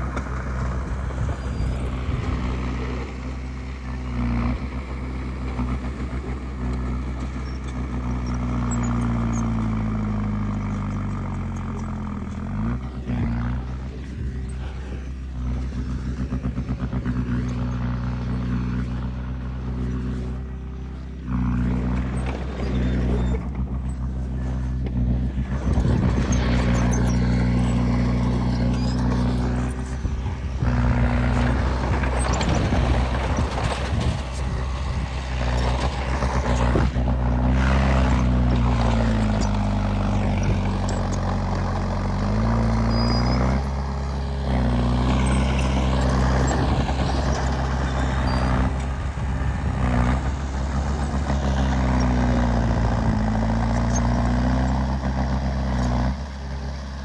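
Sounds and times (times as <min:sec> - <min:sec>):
heavy diesel machinery engine: 0:00.0 - 0:57.0
scraping and clanking: 0:21.0 - 0:41.5.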